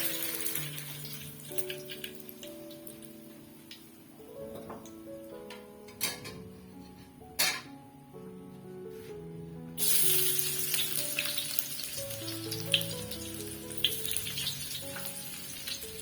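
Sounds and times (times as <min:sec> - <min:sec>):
oil crackling and popping: 0:00.0 - 0:03.0, 0:09.8 - 0:16.0
food sizzling in hot oil: 0:00.0 - 0:03.1, 0:09.8 - 0:16.0
background music: 0:00.0 - 0:16.0.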